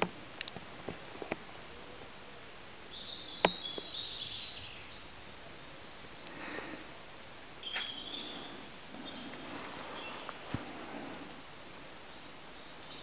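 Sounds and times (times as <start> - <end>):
steady background hiss: 0.0 - 13.0
small bird chirping: 2.9 - 11.2, 11.9 - 13.0.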